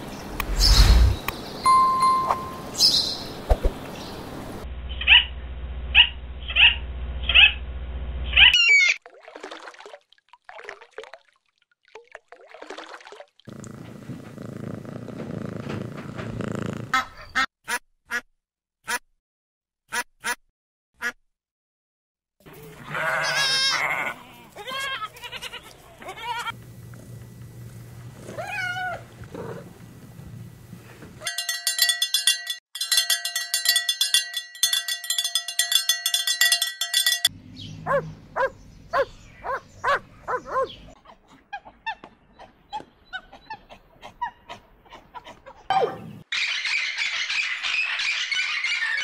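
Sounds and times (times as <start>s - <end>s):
quick repeated ringing notes: 1.7s - 2.9s, 31.3s - 37.3s.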